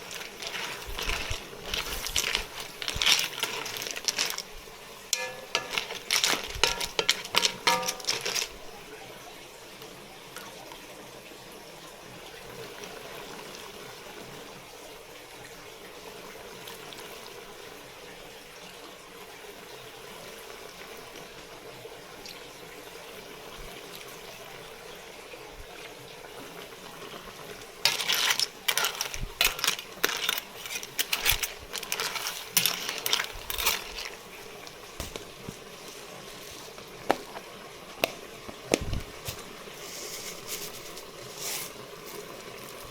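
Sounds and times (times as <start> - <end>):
clattering of hard objects: 0.0 - 8.7, 27.8 - 42.9
watery hiss: 34.1 - 42.9.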